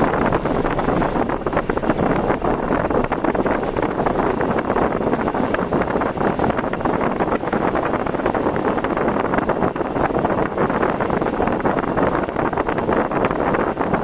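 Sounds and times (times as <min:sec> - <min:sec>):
car road noise: 0:00.0 - 0:14.0
rushing wind: 0:00.0 - 0:14.0.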